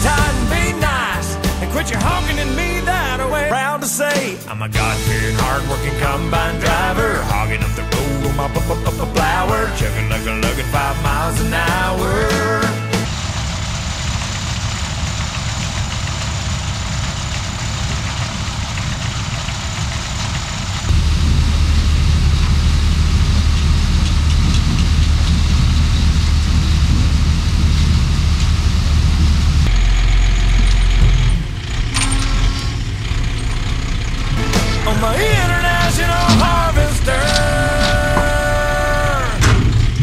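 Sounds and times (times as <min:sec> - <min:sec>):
harvest machinery engine rumble: 0:00.0 - 0:03.7, 0:04.5 - 0:40.0
mechanical clatter: 0:13.0 - 0:40.0.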